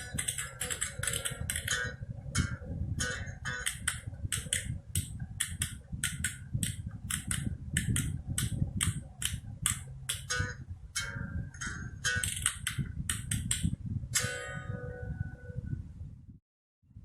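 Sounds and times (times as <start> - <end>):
spoons clacking: 0.0 - 1.8
low accompaniment: 0.0 - 15.9.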